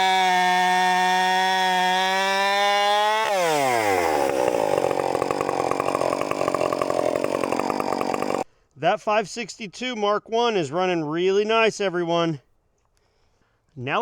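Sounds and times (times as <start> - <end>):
chainsaw whining then idling: 0.0 - 8.5.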